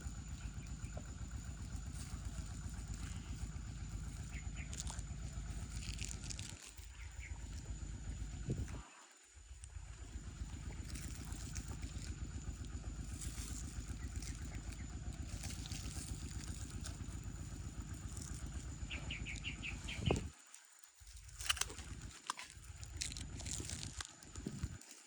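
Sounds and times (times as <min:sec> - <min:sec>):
small engine running: 0:00.0 - 0:25.0
bird chirping: 0:00.1 - 0:07.8, 0:13.2 - 0:20.3.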